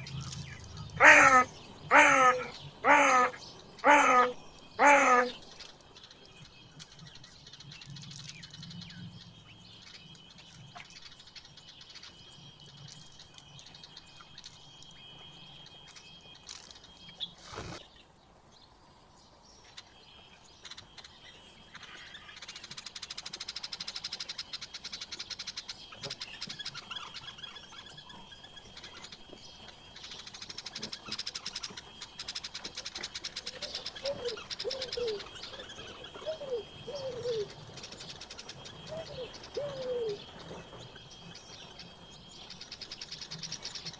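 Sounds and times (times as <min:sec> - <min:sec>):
dove cooing: 0:00.0 - 0:05.5, 0:33.3 - 0:40.8
songbird chirping: 0:00.0 - 0:43.9.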